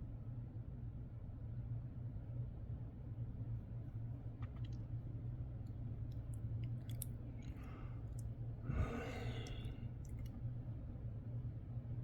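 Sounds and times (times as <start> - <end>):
steady low hum: 5.6 - 10.4
person breathing out: 8.6 - 9.9.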